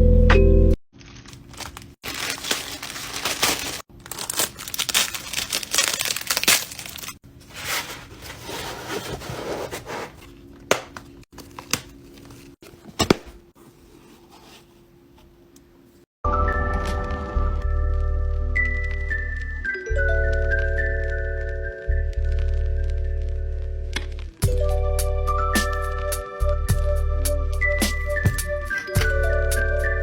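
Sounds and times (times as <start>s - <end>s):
plastic and paper crinkling: 1.0s - 14.8s.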